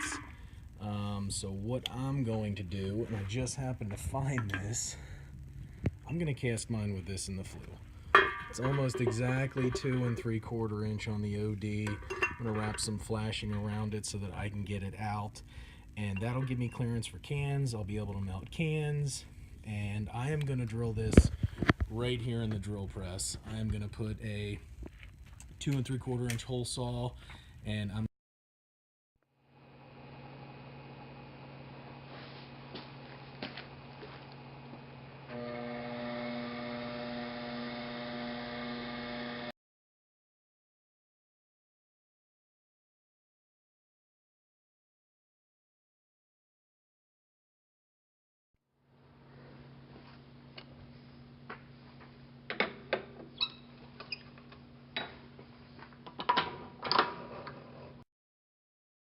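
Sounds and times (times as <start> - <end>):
electrical hum: 0.0 - 28.0, 29.7 - 39.5
metal tools clinking on workbench: 8.2 - 10.5, 11.8 - 13.8
drill press motor running: 33.7 - 39.5.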